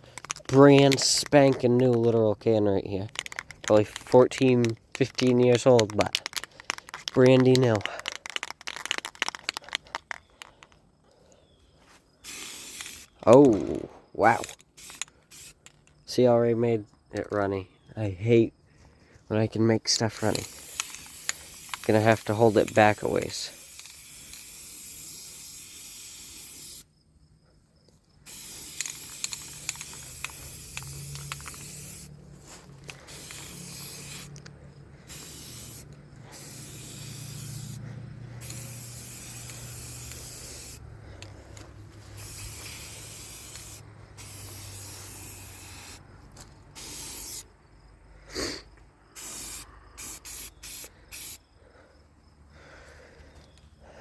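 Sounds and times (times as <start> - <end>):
spray paint can hissing: 0.0 - 2.1, 3.1 - 10.7, 12.2 - 15.8, 20.1 - 26.9, 28.2 - 46.0, 46.8 - 47.5, 49.2 - 51.4.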